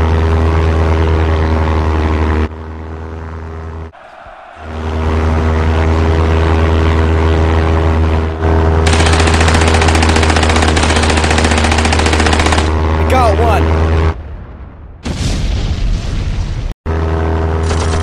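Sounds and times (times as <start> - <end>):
biplane engine drone: 0.0 - 14.4, 16.9 - 18.0
machine-gun fire: 8.8 - 12.7, 17.6 - 18.0.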